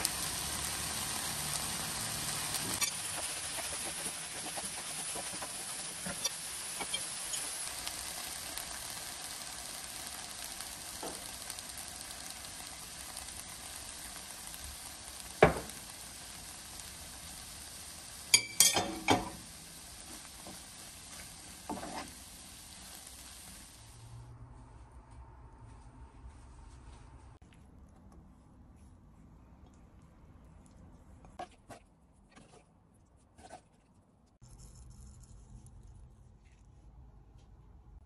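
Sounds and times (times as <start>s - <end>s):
food sizzling in a frying pan: 0.0s - 24.2s.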